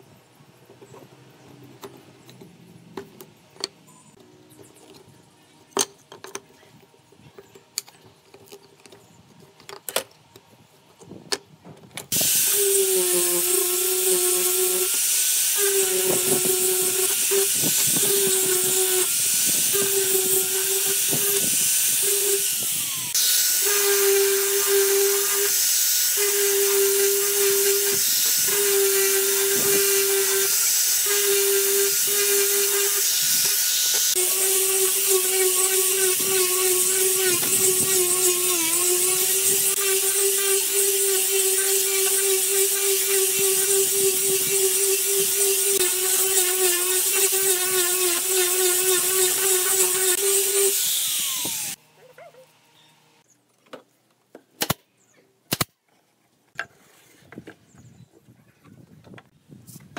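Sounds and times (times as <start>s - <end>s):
angle grinder sanding wood: 12.1s - 51.8s.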